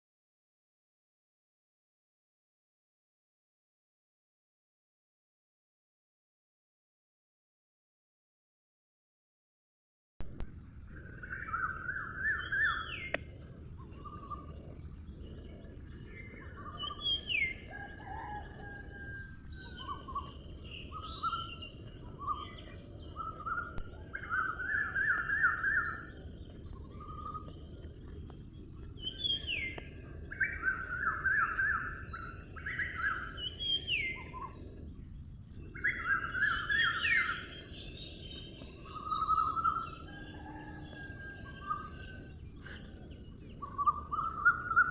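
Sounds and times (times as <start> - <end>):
steady high-pitched hiss: 10.3 - 44.9
birds chirping and calling: 10.9 - 44.9.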